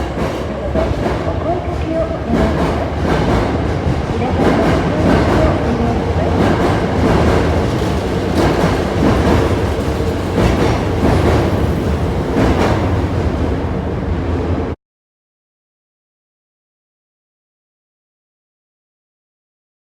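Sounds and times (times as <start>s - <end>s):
wheels clicking over rail joints: 0.0s - 13.2s
train rolling rumble: 0.0s - 14.8s.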